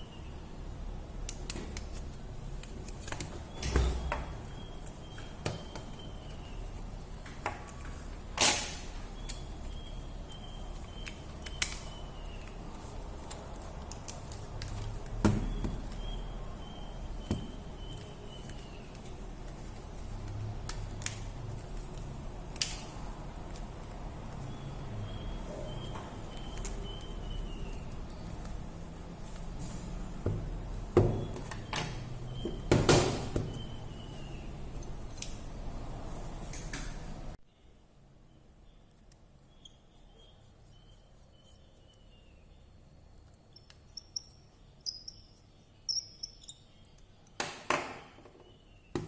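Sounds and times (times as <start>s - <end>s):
faint high chirping: 3.4s - 6.9s, 9.1s - 12.9s, 24.4s - 28.4s, 37.5s - 47.3s.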